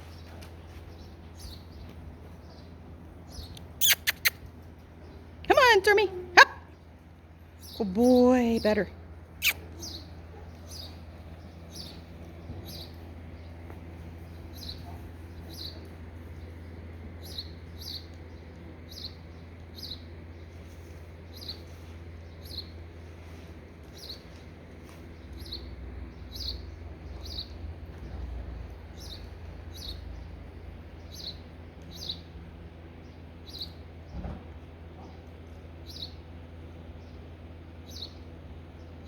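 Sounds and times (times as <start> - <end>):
bird chirping: 3.3 - 4.4, 9.4 - 13.6.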